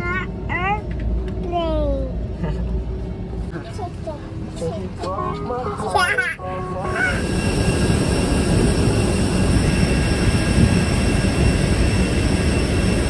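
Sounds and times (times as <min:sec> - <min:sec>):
airliner cabin rumble: 0:00.0 - 0:13.0
faint high whine: 0:05.0 - 0:13.0.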